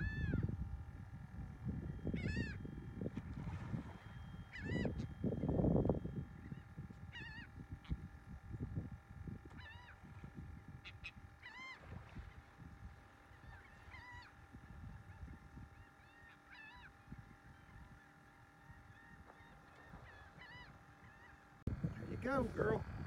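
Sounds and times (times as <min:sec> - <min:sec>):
wind rumble on microphone: 0:00.0 - 0:15.9, 0:16.7 - 0:18.0, 0:21.7 - 0:23.0
bird calling: 0:01.8 - 0:02.9, 0:04.0 - 0:08.0, 0:09.5 - 0:10.1, 0:10.8 - 0:11.9, 0:13.1 - 0:23.0.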